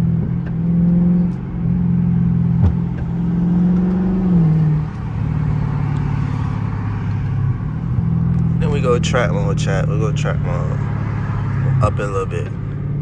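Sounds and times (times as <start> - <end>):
car engine running: 0.0 - 13.0
sharp knock: 2.6 - 3.2.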